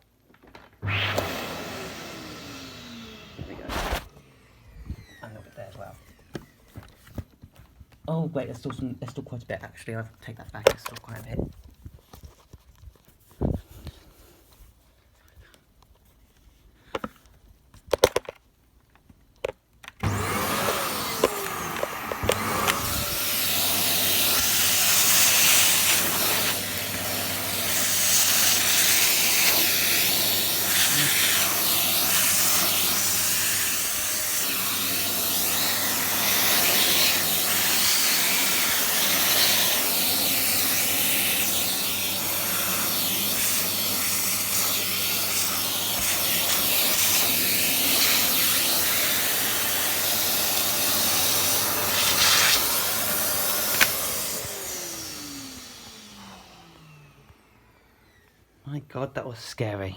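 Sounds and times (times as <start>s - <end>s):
vacuum sucking up broken glass: 0.8s - 6.3s, 20.0s - 56.2s
vacuum cleaner running: 0.8s - 7.2s, 20.0s - 58.6s.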